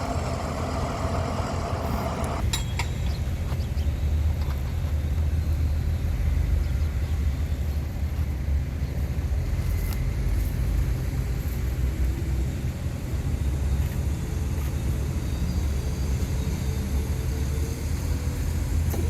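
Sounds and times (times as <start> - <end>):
heavy machinery diesel rumble: 0.0 - 2.5.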